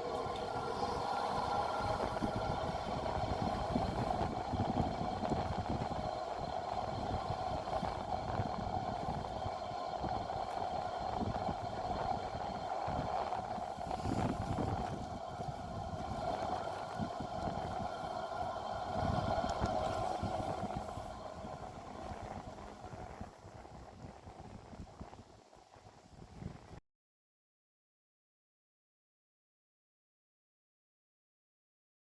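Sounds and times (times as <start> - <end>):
large fan humming: 0.0 - 25.1
rumble of moving air: 0.0 - 26.8.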